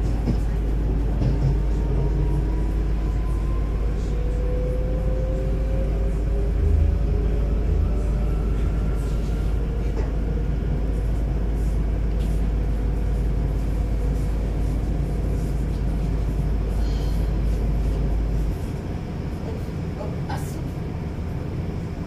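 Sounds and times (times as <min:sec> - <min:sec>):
wheels rumbling on rails: 0:00.0 - 0:22.0.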